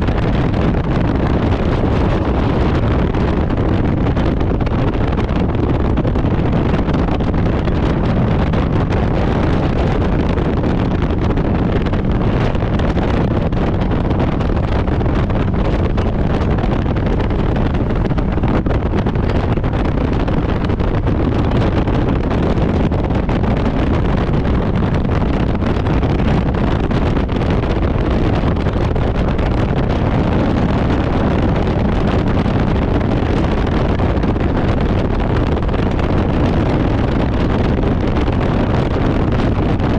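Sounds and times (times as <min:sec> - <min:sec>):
motorcycle engine running: 0:00.0 - 0:24.9
wind buffeting microphone: 0:00.0 - 0:39.9.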